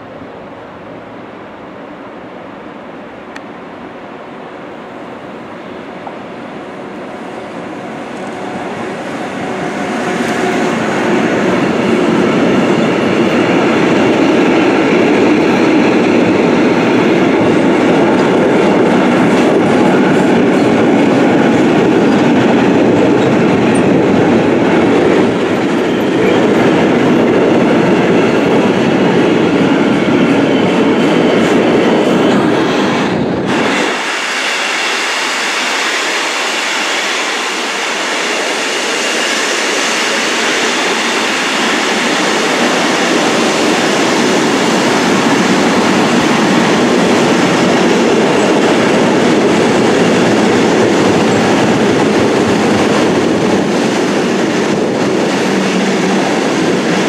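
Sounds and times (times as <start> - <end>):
freight train rumbling past: 0.0 - 57.0
hiss of wagons passing: 32.7 - 57.0.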